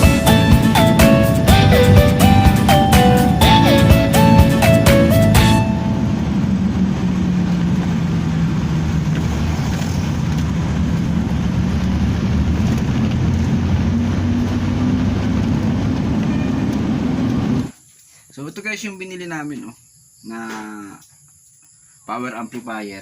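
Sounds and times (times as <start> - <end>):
road rumble: 0.0 - 17.8
vehicle engine hum: 0.0 - 17.8.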